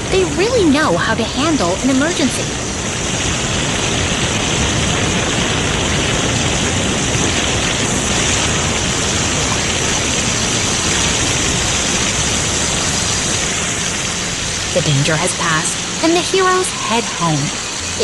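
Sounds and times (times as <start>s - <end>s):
water spraying from fire hoses: 0.0s - 18.0s.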